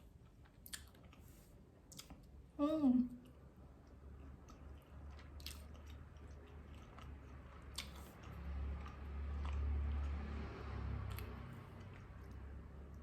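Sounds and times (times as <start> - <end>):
close-up chewing: 3.3 - 10.4
wet mouth clicks: 7.7 - 8.2.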